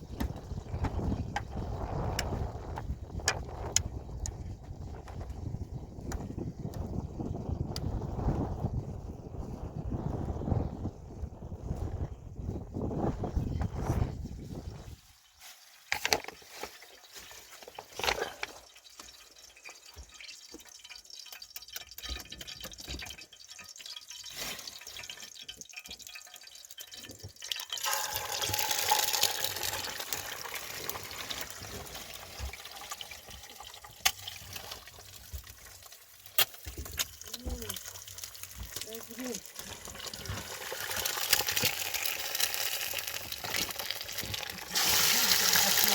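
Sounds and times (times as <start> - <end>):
water pouring: 13.8 - 45.9
water dripping and splashing: 16.4 - 45.9.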